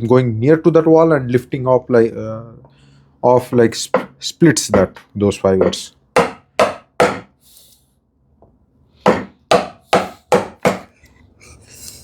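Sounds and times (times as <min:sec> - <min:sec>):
chisel struck into wood: 0:05.6 - 0:07.3, 0:09.0 - 0:10.9.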